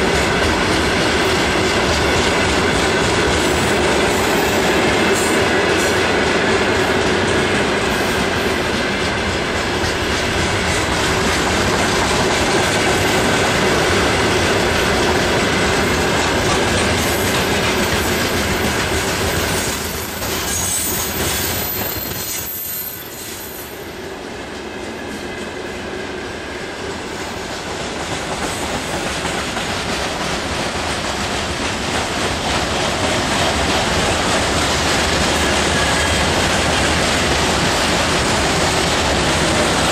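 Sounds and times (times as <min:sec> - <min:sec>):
train wheels clattering on rails: 0:00.0 - 0:39.9
high wheel squeal: 0:18.2 - 0:23.9.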